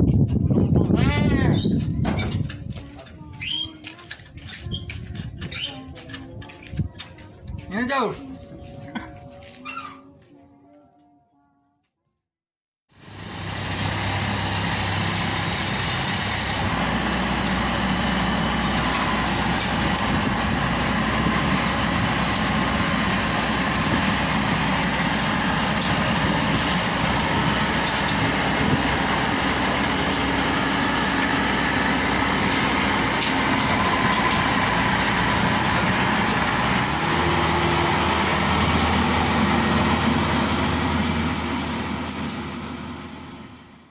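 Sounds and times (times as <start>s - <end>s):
combine harvester engine running: 12.9s - 43.9s.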